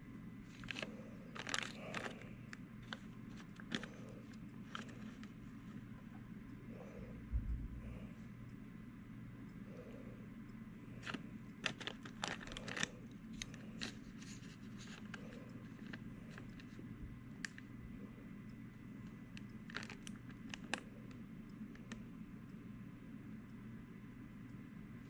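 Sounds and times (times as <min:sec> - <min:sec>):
steady low hum: 0:00.0 - 0:25.0
craft materials rustling and crinkling: 0:00.5 - 0:05.7, 0:11.0 - 0:16.8, 0:19.7 - 0:20.8.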